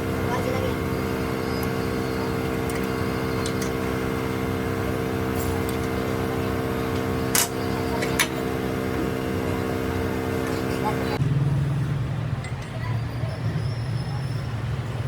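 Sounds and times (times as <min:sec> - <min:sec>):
lathe humming: 0:00.0 - 0:11.2.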